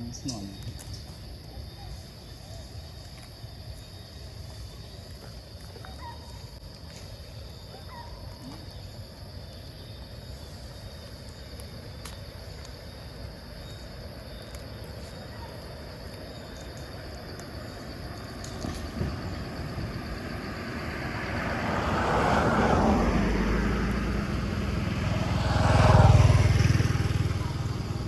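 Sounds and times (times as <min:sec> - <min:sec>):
constant high hiss: 0:00.0 - 0:21.2.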